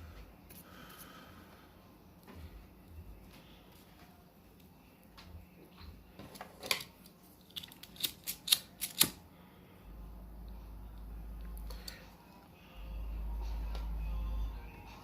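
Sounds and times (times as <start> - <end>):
steady low hum: 0.0 - 6.2, 9.2 - 15.0.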